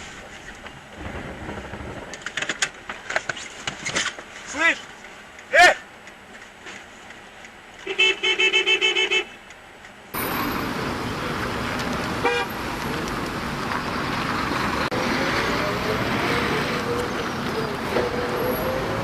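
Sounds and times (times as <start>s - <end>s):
road and traffic noise: 0.0s - 19.0s
car horn beeping: 7.8s - 9.5s, 12.2s - 12.6s.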